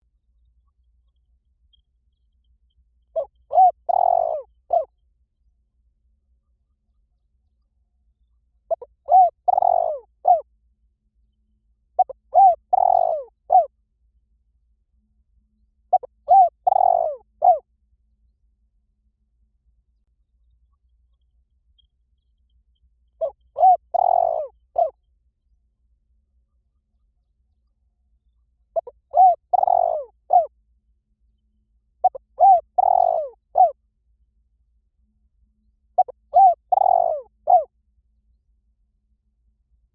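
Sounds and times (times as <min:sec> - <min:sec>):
dove cooing: 0:03.2 - 0:04.9, 0:08.7 - 0:10.5, 0:12.0 - 0:13.7, 0:15.9 - 0:17.6, 0:23.2 - 0:25.0, 0:28.8 - 0:30.5, 0:32.0 - 0:33.8, 0:36.0 - 0:37.7.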